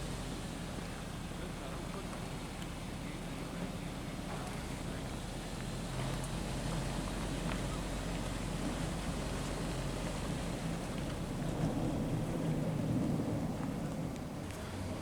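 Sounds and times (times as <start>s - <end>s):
wind buffeting microphone: 8.4s - 15.0s.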